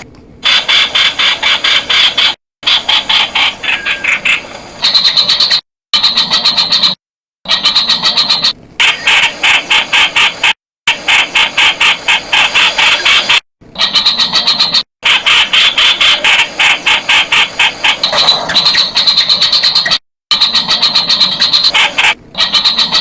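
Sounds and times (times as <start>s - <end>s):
bird calling sharp notes: 0.4s - 10.6s.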